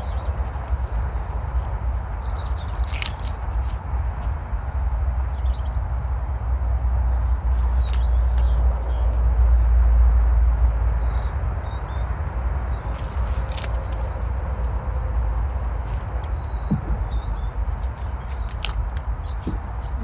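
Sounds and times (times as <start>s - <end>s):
small birds chirping: 0.0s - 20.0s
wind rumble on microphone: 0.0s - 20.0s
sharp snaps or rustles: 0.3s - 4.5s, 7.4s - 9.3s, 12.8s - 14.8s, 15.6s - 20.0s.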